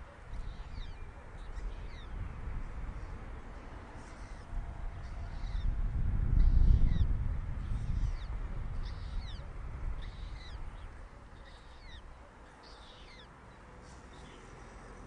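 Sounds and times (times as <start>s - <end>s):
bird chirps: 0.3s - 2.1s, 4.0s - 5.7s, 7.7s - 14.5s.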